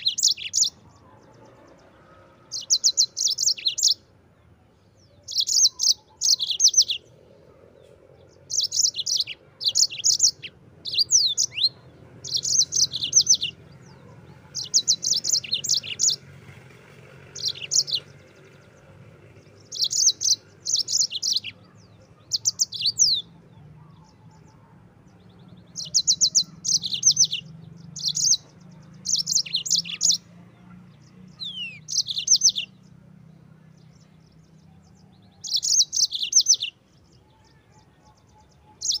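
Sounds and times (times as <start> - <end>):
canary singing high trills: 0.0 - 0.8, 2.1 - 4.0, 5.1 - 7.1, 8.2 - 16.3, 17.2 - 18.6, 19.5 - 24.7, 25.5 - 30.3, 31.3 - 32.8, 34.9 - 39.0.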